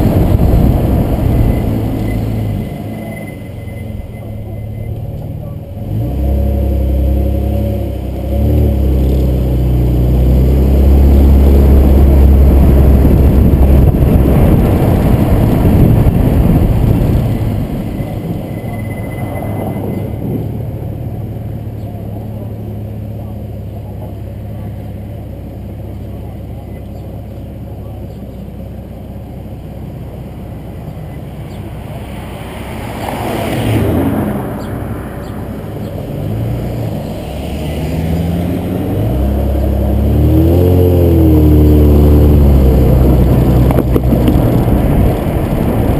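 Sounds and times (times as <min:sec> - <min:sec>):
tyre and wind noise: 0:00.0 - 0:06.4, 0:08.4 - 0:21.6, 0:35.4 - 0:45.9
car engine accelerating: 0:00.0 - 0:45.9.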